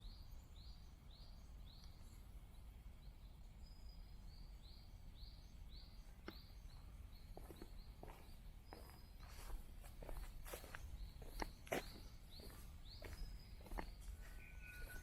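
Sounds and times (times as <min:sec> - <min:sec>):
bird call: 0:10.6 - 0:15.0.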